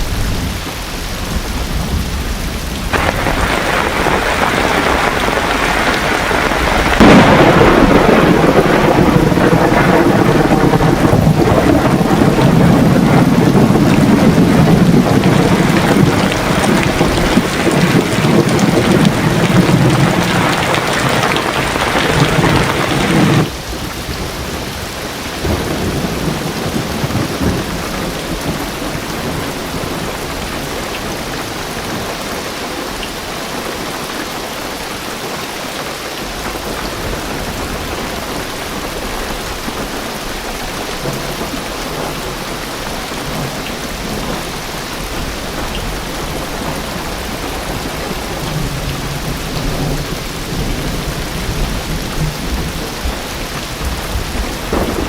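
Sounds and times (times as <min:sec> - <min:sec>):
thunder rumble: 0:00.0 - 0:33.0, 0:36.2 - 0:55.0
heavy rain on car roof: 0:00.0 - 0:55.0.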